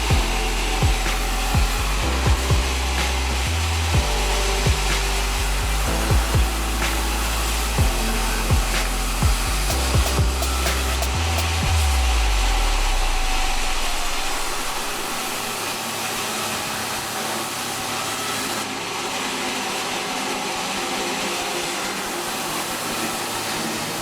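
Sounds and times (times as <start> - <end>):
deep low rumble: 0.0 - 15.4
sawmill saw whirring: 0.0 - 24.0.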